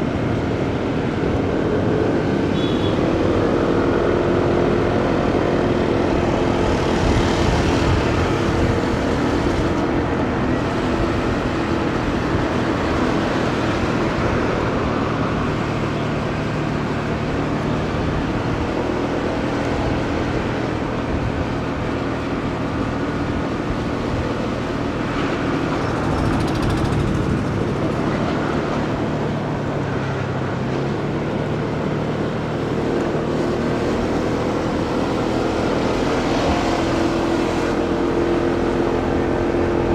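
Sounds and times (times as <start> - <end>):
motorcycle engine running: 0.0 - 30.2
road and wind noise: 0.0 - 39.9.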